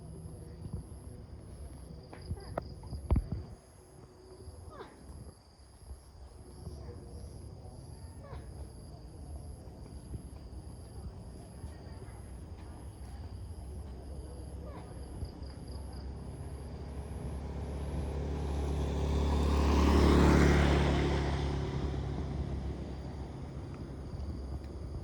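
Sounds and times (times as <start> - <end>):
motor vehicle passing by: 15.6 - 25.0.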